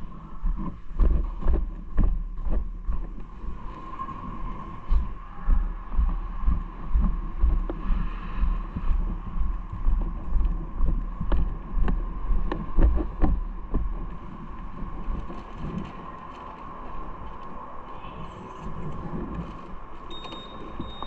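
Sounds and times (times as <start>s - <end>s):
low thumps: 0.0s - 3.6s, 4.9s - 14.2s
wind buffeting microphone: 0.0s - 21.0s.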